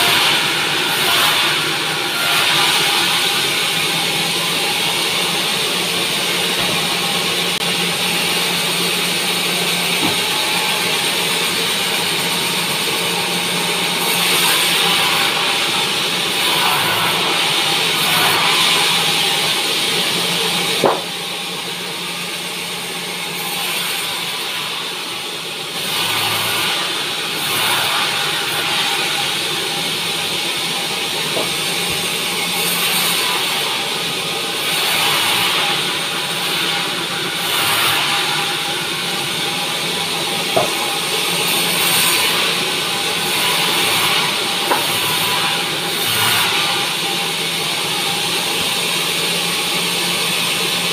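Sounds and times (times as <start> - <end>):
band saw sawing log: 0.0 - 21.6, 23.2 - 50.9
sharp knock: 20.8 - 21.1.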